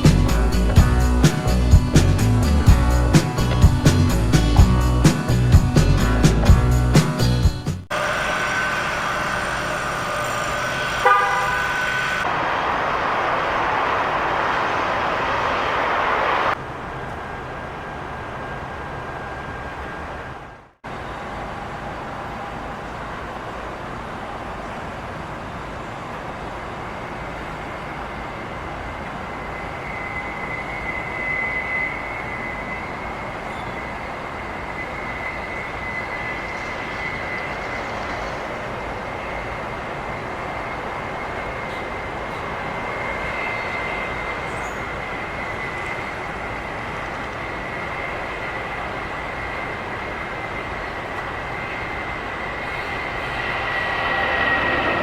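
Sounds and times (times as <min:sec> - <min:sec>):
jet engines whining: 0:07.9 - 0:20.9, 0:26.4 - 0:55.0.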